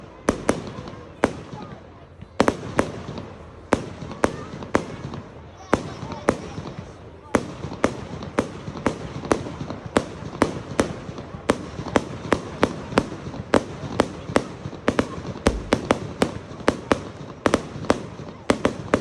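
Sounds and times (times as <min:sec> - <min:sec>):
fireworks bangs: 0:10.1 - 0:19.0.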